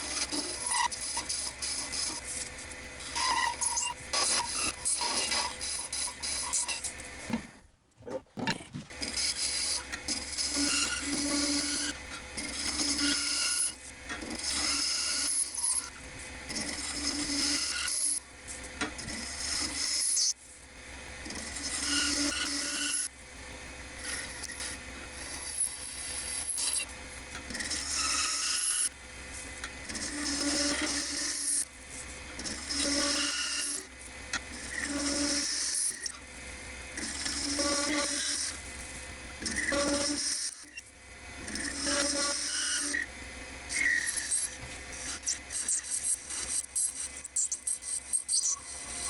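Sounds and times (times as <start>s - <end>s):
lathe humming: 21.6s - 49.0s
tool scraping spinning acrylic: 24.0s - 28.9s, 29.6s - 36.2s, 39.4s - 40.8s, 43.7s - 49.0s.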